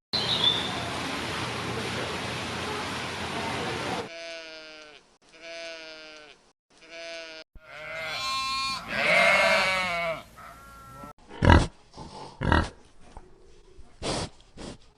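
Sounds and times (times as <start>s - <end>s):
sheep or goat bleating: 4.1s - 11.6s
short breathy blasts: 14.0s - 14.8s.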